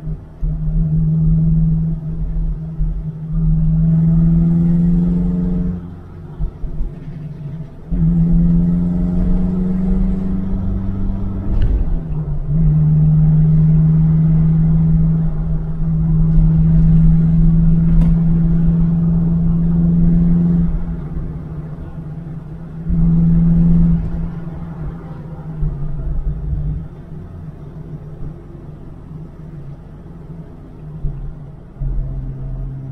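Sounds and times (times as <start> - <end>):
car engine pulling under throttle: 0.0 - 32.9.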